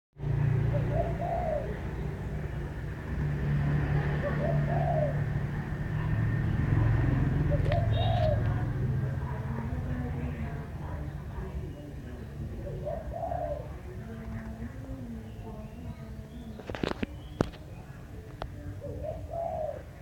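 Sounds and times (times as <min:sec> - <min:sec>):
dove cooing: 0:00.3 - 0:20.0.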